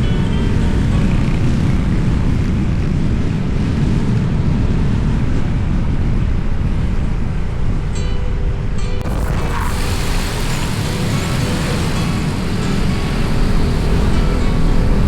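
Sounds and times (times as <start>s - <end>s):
wind buffeting microphone: 9.0s - 15.0s
motorbike engine rumble: 10.4s - 15.0s.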